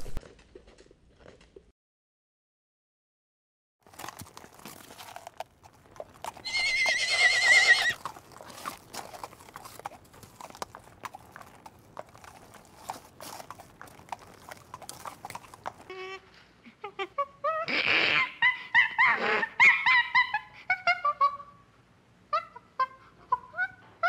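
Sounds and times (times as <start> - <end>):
hoof knocks and clicks: 3.8 - 6.9, 7.9 - 15.9
zebra whinny call: 6.4 - 8.0.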